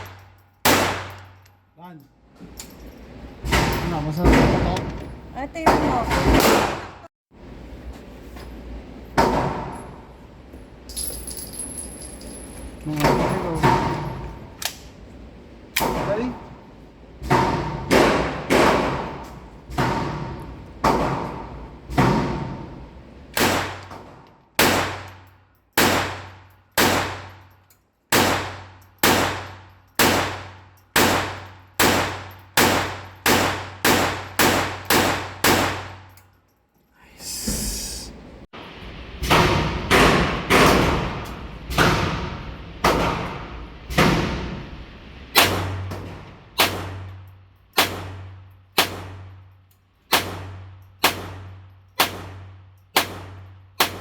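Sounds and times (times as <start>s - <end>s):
pistol shots with ringing echo: 0.0s - 1.4s, 24.6s - 27.4s, 28.1s - 36.1s, 47.8s - 49.4s, 50.1s - 54.0s.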